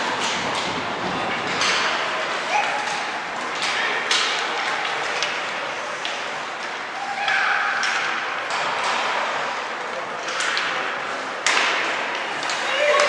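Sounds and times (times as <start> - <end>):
hockey sticks and puck clacking: 0.0 - 13.0
people shouting: 2.5 - 3.1, 7.0 - 7.9, 12.6 - 13.0.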